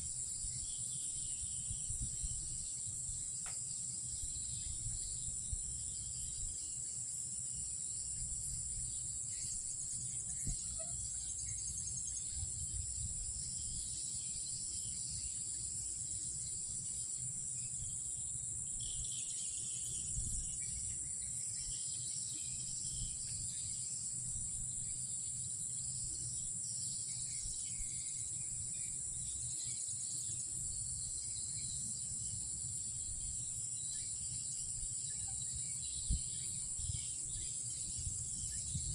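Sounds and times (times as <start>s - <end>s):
night insects chirring: 0.0s - 38.9s
faint chirps and calls: 8.2s - 16.6s, 33.8s - 38.9s.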